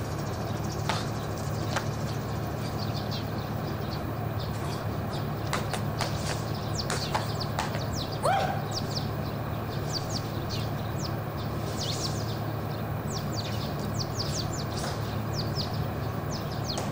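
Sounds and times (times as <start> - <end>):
birds chirping: 0.0 - 16.9
steady low hum: 0.0 - 16.9.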